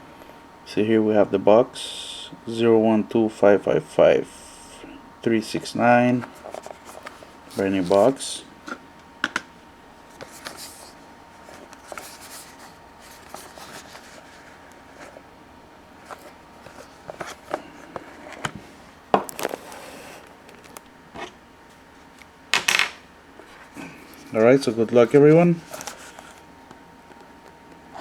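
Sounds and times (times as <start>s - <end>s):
handling of card box: 6.1s - 8.9s, 10.1s - 15.2s, 16.0s - 21.4s, 23.4s - 27.8s.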